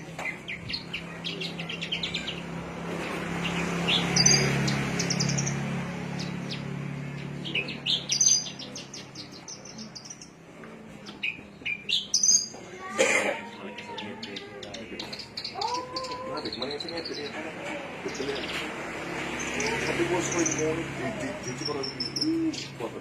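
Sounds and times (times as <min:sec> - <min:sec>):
small songbird chirping: 0:00.0 - 0:12.6, 0:18.0 - 0:22.9.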